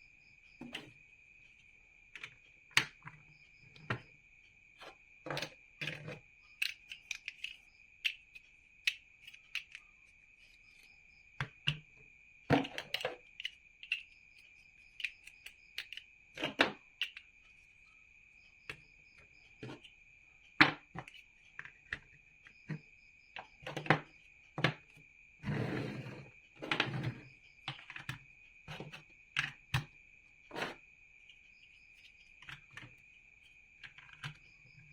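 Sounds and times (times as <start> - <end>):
plastic bricks clicking: 5.3 - 9.8, 12.5 - 14.1, 14.9 - 17.2.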